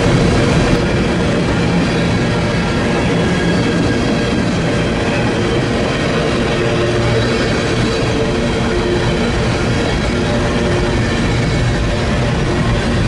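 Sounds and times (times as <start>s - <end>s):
sustained tones: 0.0s - 1.1s
train wheels rumbling on rail: 0.0s - 13.0s.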